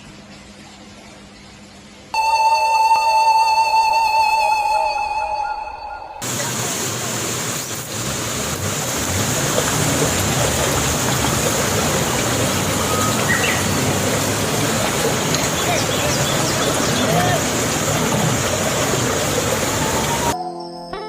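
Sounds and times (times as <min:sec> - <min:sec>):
tune playing: 0:02.2 - 0:06.2
rushing outdoor background noise: 0:06.2 - 0:20.4.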